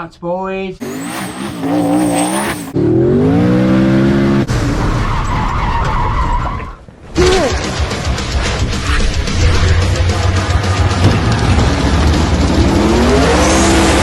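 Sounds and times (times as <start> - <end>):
race car engine revving: 0.8 - 4.8, 8.8 - 14.0.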